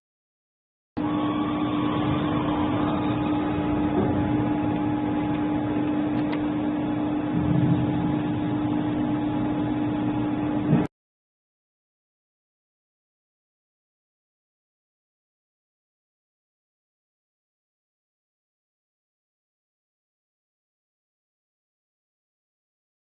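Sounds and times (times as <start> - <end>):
machining centre running: 1.0 - 10.9.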